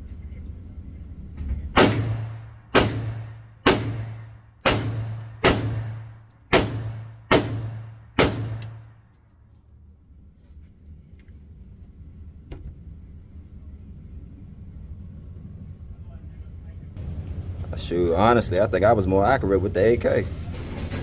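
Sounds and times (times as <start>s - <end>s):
steady low hum: 0.0s - 21.0s
gunshots with echo: 1.8s - 9.0s.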